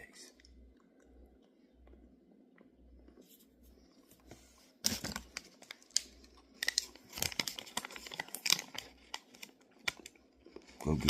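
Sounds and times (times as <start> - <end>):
food packaging crinkling: 4.6 - 11.0.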